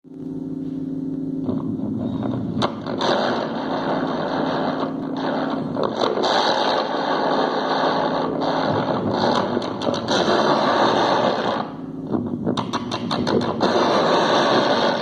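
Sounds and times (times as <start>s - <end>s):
harsh noisy buzz: 0.1s - 15.0s
microwave oven hum: 0.1s - 15.0s.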